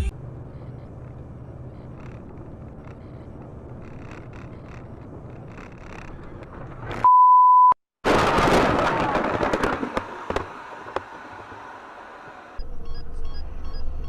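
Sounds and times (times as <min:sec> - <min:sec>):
scattered clicks and knocks: 0:00.9 - 0:07.0
loud bleep tone: 0:07.0 - 0:07.8
vehicle crash: 0:08.1 - 0:12.6.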